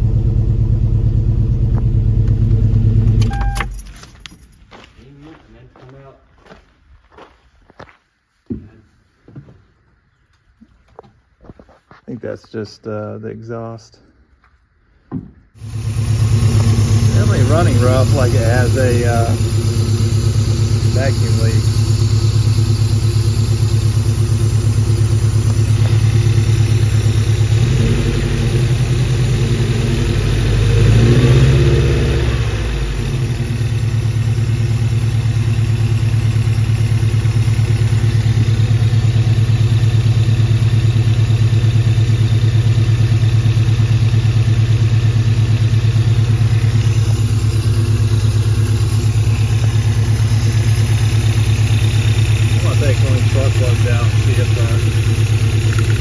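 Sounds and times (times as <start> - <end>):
engine idling roughly: 15.6 - 31.2, 31.8 - 56.0.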